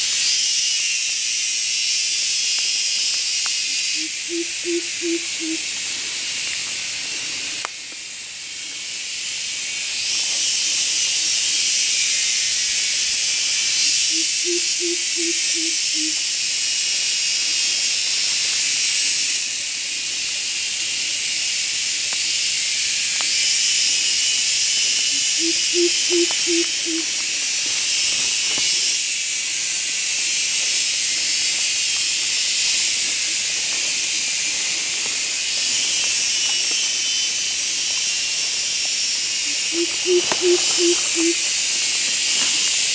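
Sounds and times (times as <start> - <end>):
insect chorus droning: 0.0 - 42.9
low hooting call: 4.0 - 5.7, 14.1 - 16.2, 25.4 - 27.2, 39.5 - 41.6.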